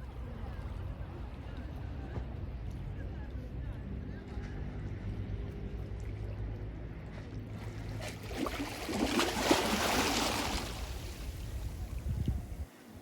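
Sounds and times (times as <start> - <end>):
sea wave breaking on shore: 8.0 - 13.0.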